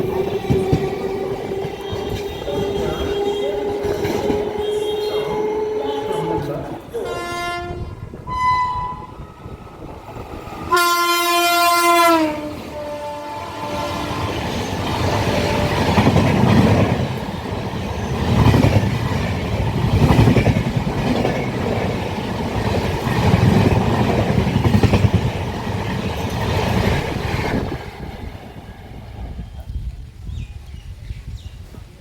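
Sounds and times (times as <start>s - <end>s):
train wheels clattering: 0.0s - 6.8s, 13.6s - 28.4s
train horn: 0.0s - 9.9s, 10.6s - 16.6s.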